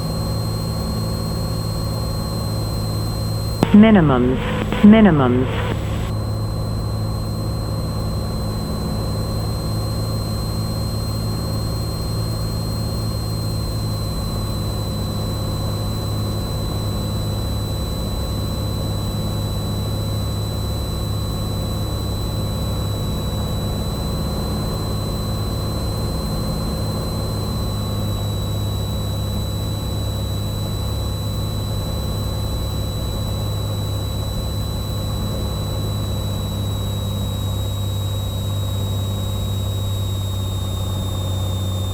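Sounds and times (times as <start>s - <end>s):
thin high whine: 3.6s - 6.1s.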